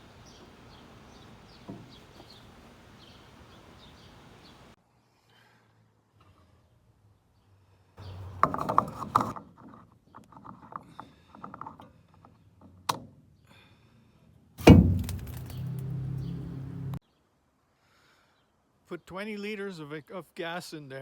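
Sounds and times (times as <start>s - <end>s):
loud knock: 14.6s - 15.8s.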